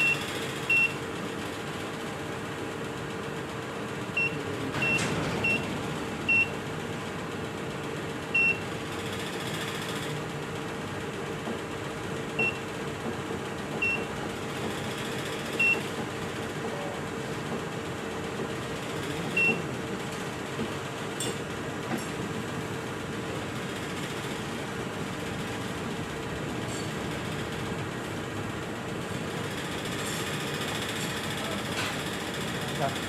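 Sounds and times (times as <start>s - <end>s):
keypad beeps: 0.0s - 1.0s, 4.2s - 5.7s, 6.3s - 6.5s, 8.4s - 8.6s, 13.8s - 14.1s, 15.6s - 15.9s, 19.3s - 19.6s
steady background hum: 0.0s - 33.0s.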